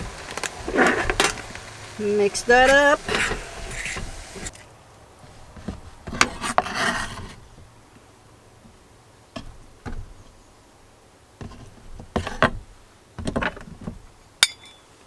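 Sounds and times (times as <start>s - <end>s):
utensil scraping pot: 0.0s - 4.6s.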